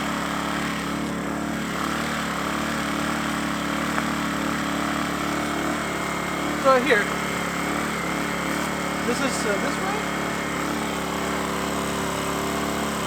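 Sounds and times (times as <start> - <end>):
generator engine drone: 0.0 - 13.0.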